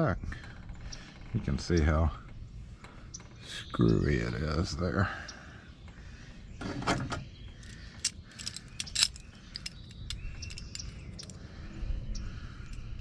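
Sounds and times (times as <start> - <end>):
metal lock parts clinking: 7.6 - 11.4.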